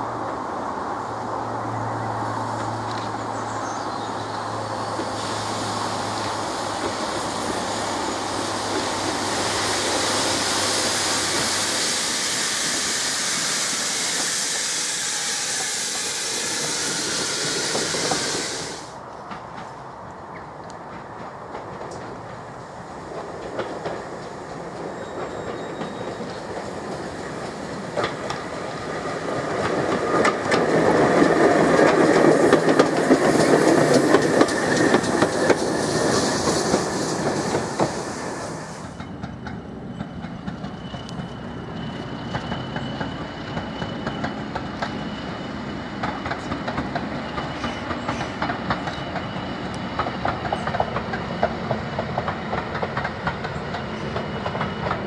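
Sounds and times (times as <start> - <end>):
steam locomotive rumbling past: 0.0 - 55.0
thin wheel squeal: 12.0 - 18.8
wheels clicking over rail joints: 20.6 - 38.0, 46.0 - 55.0.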